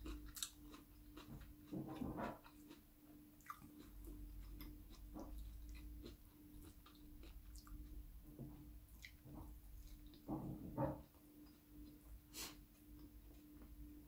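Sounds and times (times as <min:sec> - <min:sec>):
person chewing: 0:00.0 - 0:02.8, 0:03.4 - 0:10.3
faint steady hum: 0:00.0 - 0:14.0.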